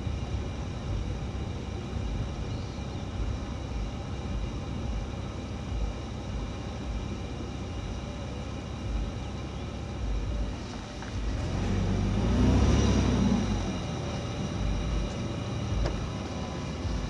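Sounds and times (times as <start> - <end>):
motor running with hum: 0.0 - 17.0.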